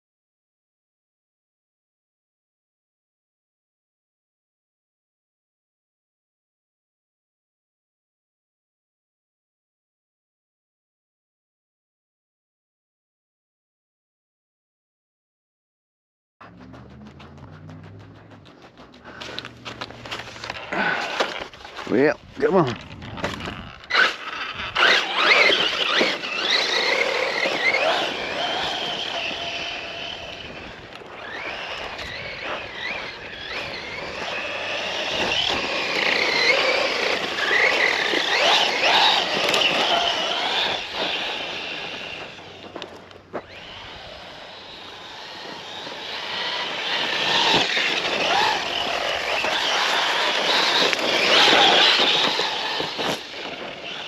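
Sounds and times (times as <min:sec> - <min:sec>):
running gear rattle and scrape: 0:16.4 - 0:43.8, 0:45.4 - 0:54.0
electric motor whining: 0:16.5 - 0:54.0.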